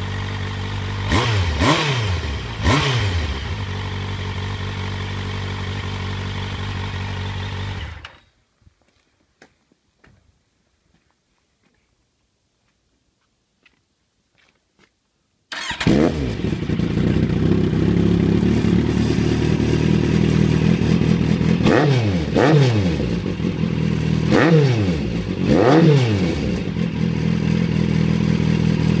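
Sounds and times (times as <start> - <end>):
motorcycle engine idling: 0.0 - 8.2, 15.6 - 29.0.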